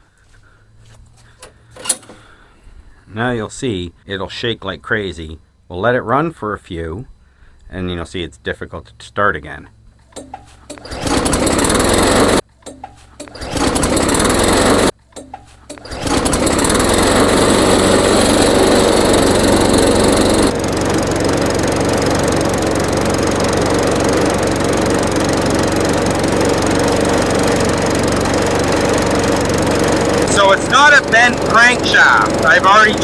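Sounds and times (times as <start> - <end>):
lawn mower engine running: 1.3 - 2.3, 10.2 - 33.0.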